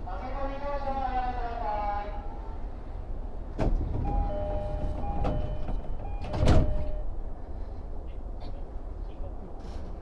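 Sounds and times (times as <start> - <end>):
sliding doors thudding shut: 3.6 - 6.9.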